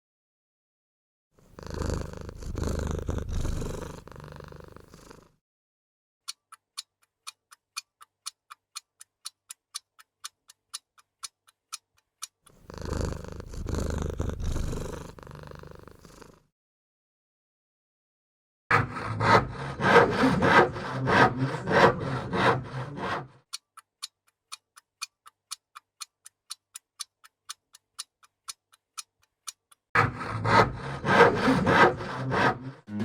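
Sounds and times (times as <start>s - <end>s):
cat purring: 1.4s - 5.4s, 12.6s - 16.5s
clock ticking: 6.3s - 13.5s, 18.7s - 33.0s.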